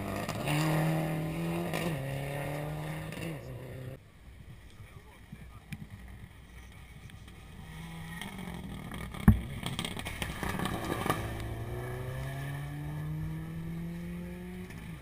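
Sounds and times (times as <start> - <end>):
rally car engine accelerating: 0.0 - 4.0, 7.6 - 15.0.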